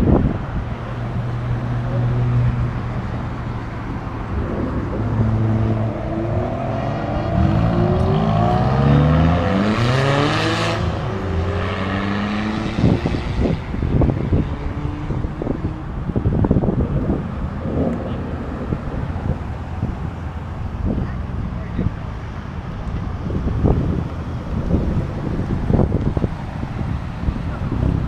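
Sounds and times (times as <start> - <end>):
car engines idling: 0.0 - 9.0, 13.4 - 28.0
cars accelerating away: 0.0 - 21.6.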